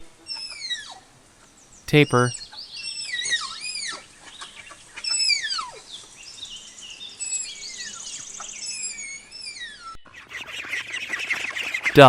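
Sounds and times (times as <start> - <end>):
tapir whistling squeals: 2.8 - 4.1, 7.2 - 12.0.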